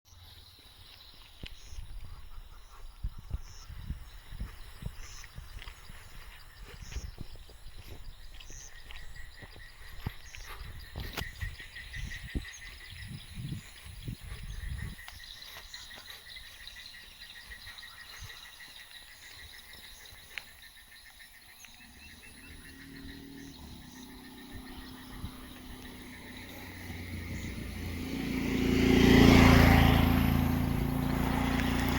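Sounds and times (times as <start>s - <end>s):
frogs and insects trilling: 0.1s - 31.9s
vehicle engine hum: 21.8s - 31.9s.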